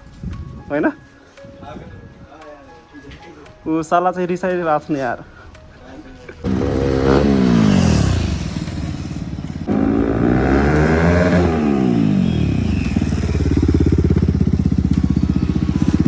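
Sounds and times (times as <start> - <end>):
motorcycle engine revving and idling: 6.4 - 16.0.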